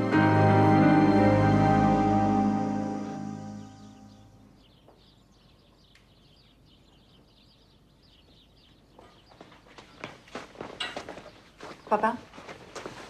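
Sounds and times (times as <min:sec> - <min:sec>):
background music: 0:00.0 - 0:04.6
birds chirping and twittering: 0:01.0 - 0:13.0.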